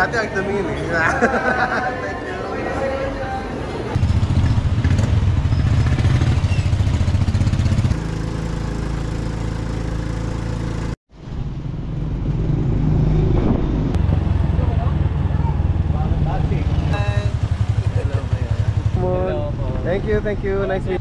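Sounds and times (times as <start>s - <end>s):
small motorcycle engine running: 4.0s - 11.0s.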